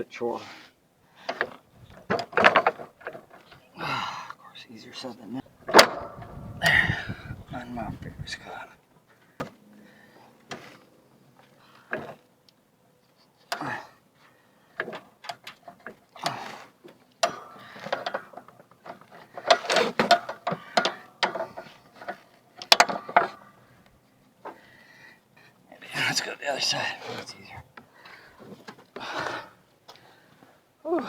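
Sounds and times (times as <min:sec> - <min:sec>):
metal clicks and clanks: 0:17.1 - 0:23.5.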